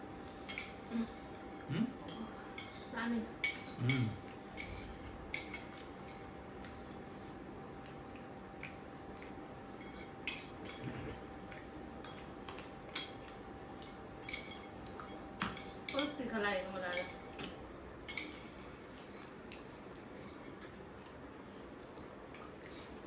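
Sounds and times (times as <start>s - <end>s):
faint steady hum: 0.0s - 23.0s
cutlery clinking on plates: 12.0s - 16.2s.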